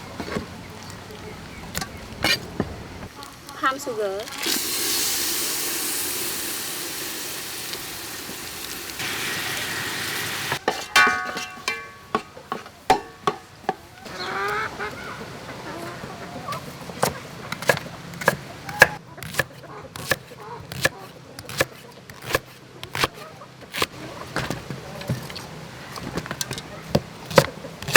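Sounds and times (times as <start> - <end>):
sugar sizzling in a hot pan: 3.7 - 10.8
spatula knocking against pan: 10.6 - 13.8.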